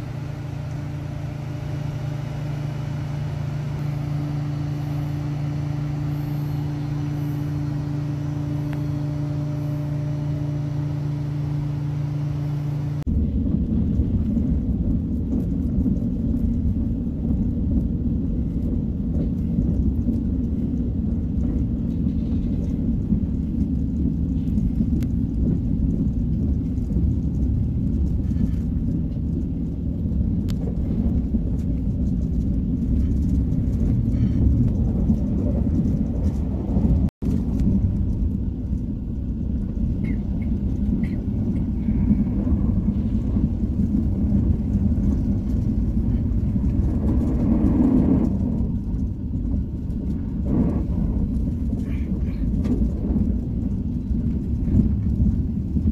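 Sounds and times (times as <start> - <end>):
low hum with two tones: 0.0 - 55.9
train rumble from inside carriage: 0.0 - 55.9.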